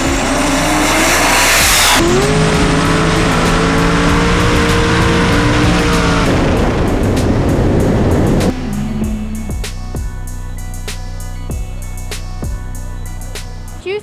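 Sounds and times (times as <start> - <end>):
race engine running loud: 0.0 - 10.2
tire and exhaust hiss: 0.0 - 13.8
music: 0.0 - 14.0.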